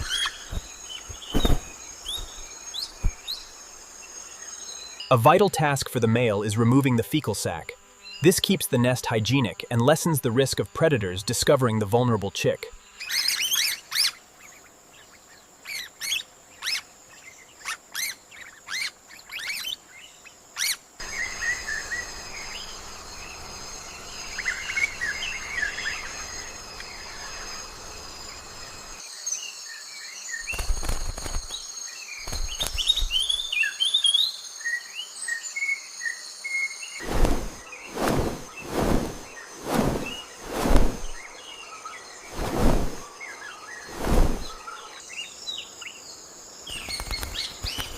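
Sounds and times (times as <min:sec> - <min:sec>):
dull thumps: 0:00.0 - 0:02.4
birds chirping: 0:00.0 - 0:10.0, 0:36.8 - 0:47.9
insect drone: 0:00.0 - 0:47.9.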